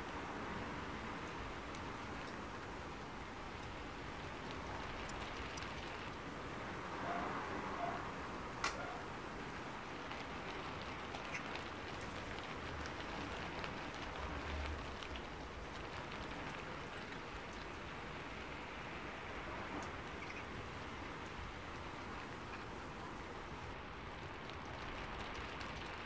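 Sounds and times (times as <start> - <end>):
heavy rain hiss: 0.0 - 26.0.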